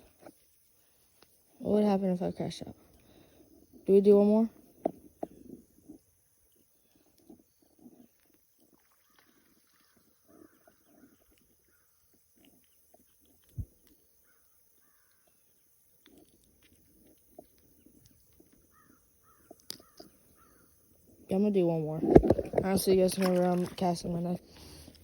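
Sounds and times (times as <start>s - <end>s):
distant bird calls: 8.8s - 12.1s, 14.1s - 15.3s, 17.4s - 21.2s.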